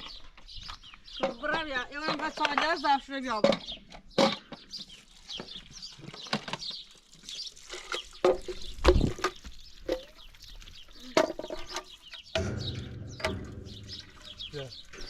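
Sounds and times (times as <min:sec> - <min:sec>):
birds chirping: 0:00.0 - 0:15.0
sharp knocks: 0:12.3 - 0:15.0.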